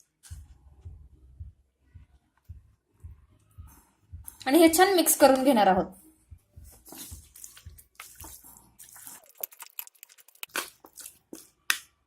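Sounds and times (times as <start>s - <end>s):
wet squelching of marinated chicken: 6.7s - 11.8s.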